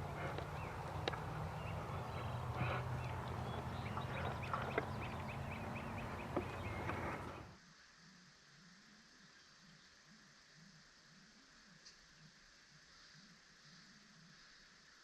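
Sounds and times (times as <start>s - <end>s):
small birds chirping: 0.0s - 7.6s
steady low hum: 0.0s - 7.6s.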